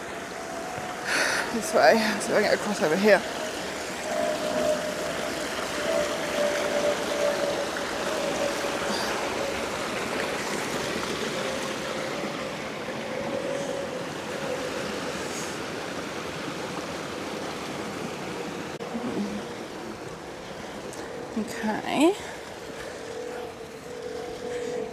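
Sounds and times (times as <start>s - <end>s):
steady tone: 0.0s - 16.2s
stream water rushing: 0.0s - 24.9s.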